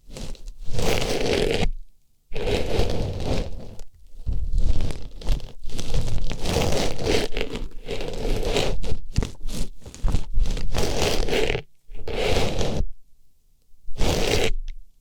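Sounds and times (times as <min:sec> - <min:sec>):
artificial flower rustling on microphone: 0:02.3 - 0:12.9.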